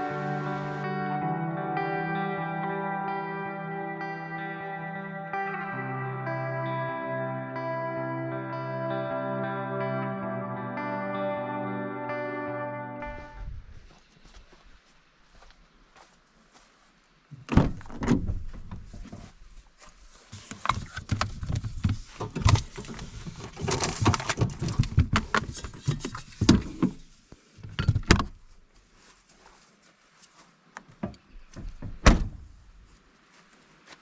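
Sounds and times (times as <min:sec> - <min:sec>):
rustling handling noise: 0:13.0 - 0:31.6
thumps and knocks: 0:31.0 - 0:32.4.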